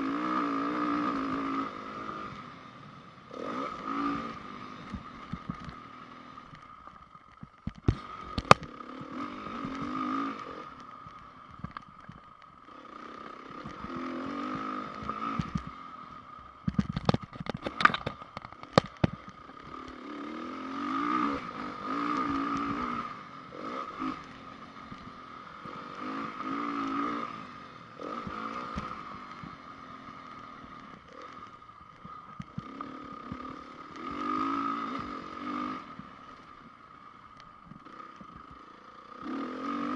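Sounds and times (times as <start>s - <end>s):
motorcycle engine revving: 0.0s - 39.9s
sharp knocks and clatter: 16.6s - 19.3s.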